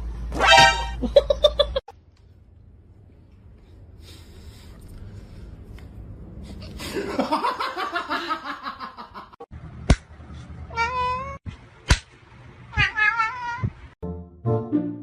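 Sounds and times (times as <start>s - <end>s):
person laughing: 1.0s - 1.8s.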